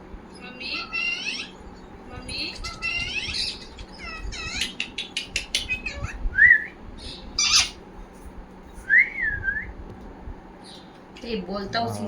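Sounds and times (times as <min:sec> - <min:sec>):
parrot squawk: 0:00.7 - 0:01.6, 0:02.4 - 0:06.3, 0:07.0 - 0:07.8
parrot whistles: 0:02.6 - 0:07.8
parrot clicks and chirps: 0:02.7 - 0:06.1.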